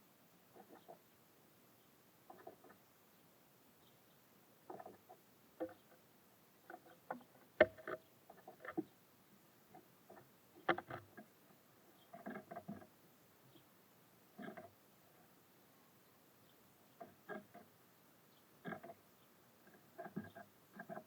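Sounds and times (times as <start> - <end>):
birds pecking at feeder: 4.7 - 8.9, 9.7 - 13.6, 16.9 - 17.8, 18.6 - 21.0.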